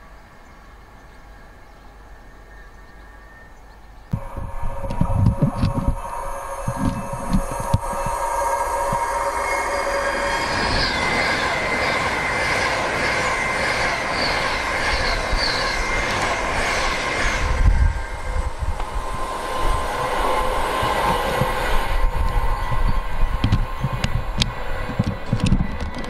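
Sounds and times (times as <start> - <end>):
low rumbling: 4.1 - 12.1
train passing: 4.1 - 26.0.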